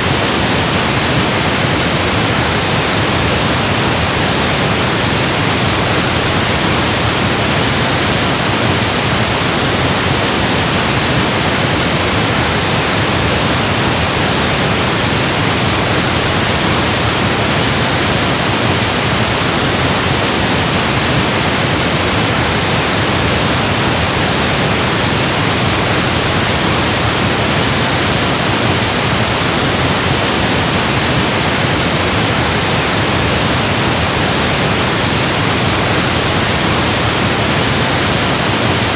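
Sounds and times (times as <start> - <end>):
pink noise hiss: 0.0 - 38.9.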